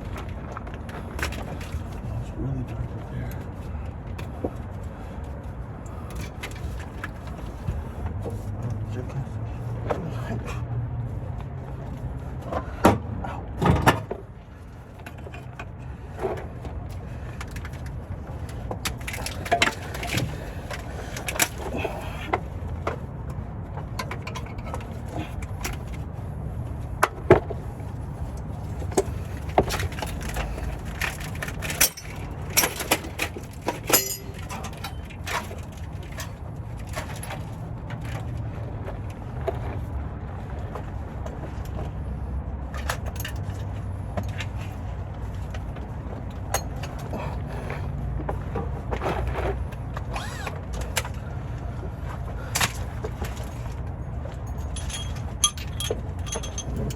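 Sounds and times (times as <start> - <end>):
hand tools clicking and knocking: 23.8 - 26.0, 28.8 - 37.5, 54.3 - 56.9.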